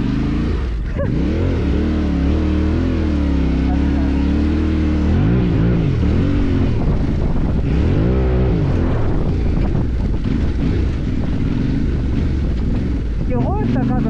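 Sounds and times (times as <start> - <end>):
motorcycle engine revving: 0.0 - 14.0
wind rushing over microphone: 5.0 - 14.0.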